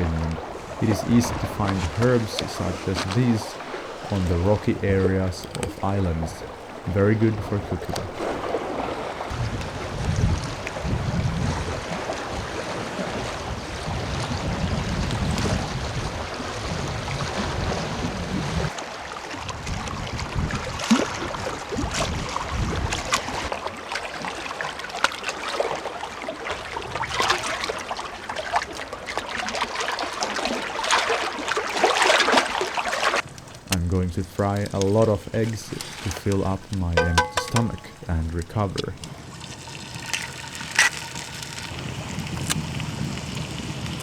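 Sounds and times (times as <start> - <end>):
sea water lapping on rocks: 0.0 - 10.5, 20.2 - 44.0.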